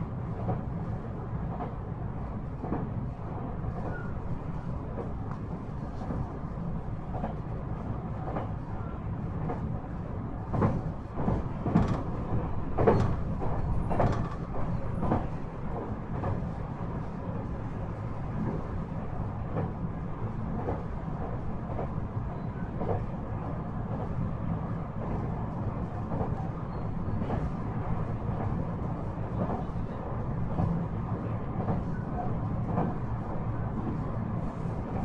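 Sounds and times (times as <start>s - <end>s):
train running rumble: 0.0s - 35.0s
wheels clicking over rail joints: 10.5s - 15.3s.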